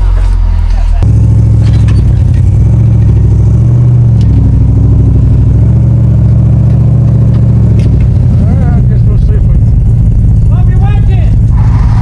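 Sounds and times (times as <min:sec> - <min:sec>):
vehicle engine droning at low revs: 0:00.0 - 0:12.0.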